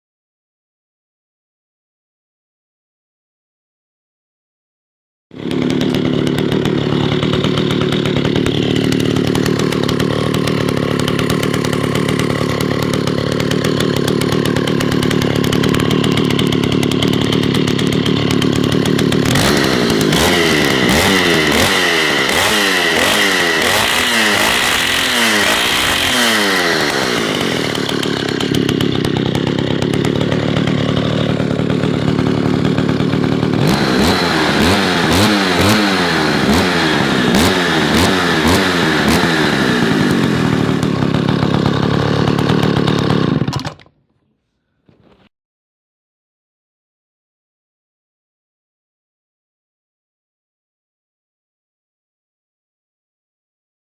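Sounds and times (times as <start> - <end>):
chainsaw running: 5.3 - 44.0.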